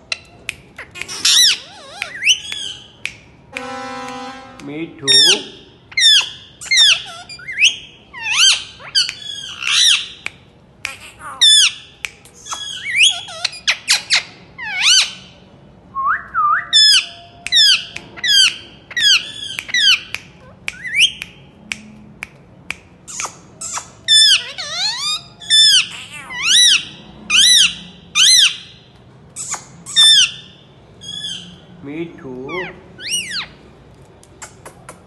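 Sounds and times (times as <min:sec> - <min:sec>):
parakeet squawking: 0:00.0 - 0:03.1, 0:05.0 - 0:15.4, 0:16.7 - 0:21.3, 0:23.0 - 0:31.6, 0:32.4 - 0:33.6.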